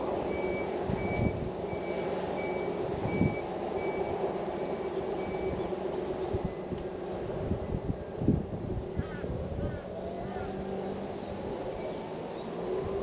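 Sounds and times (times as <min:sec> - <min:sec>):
reversing beeper: 0:00.2 - 0:05.6.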